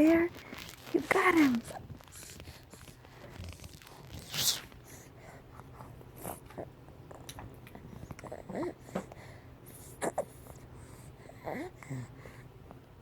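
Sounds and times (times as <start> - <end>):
dog chewing and tearing toy: 0.0 - 4.9.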